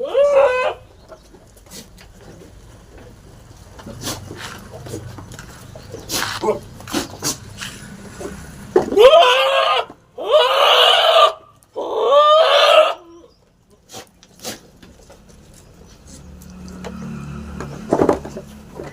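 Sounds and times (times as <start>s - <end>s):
goat bleating: 0.0s - 0.8s, 9.0s - 13.1s.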